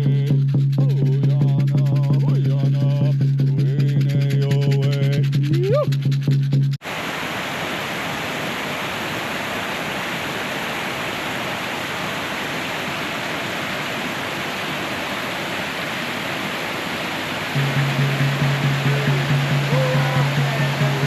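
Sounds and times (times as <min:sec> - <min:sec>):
music: 0:00.0 - 0:06.8, 0:17.6 - 0:21.0
flowing water rushing: 0:06.8 - 0:21.0.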